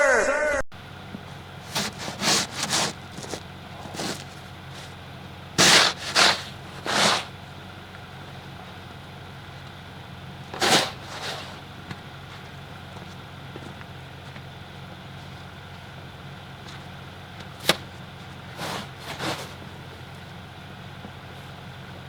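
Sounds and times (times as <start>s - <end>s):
car engine idling: 0.7s - 22.0s
loud crunching scrapes: 1.1s - 7.7s, 10.4s - 14.5s, 16.6s - 20.6s.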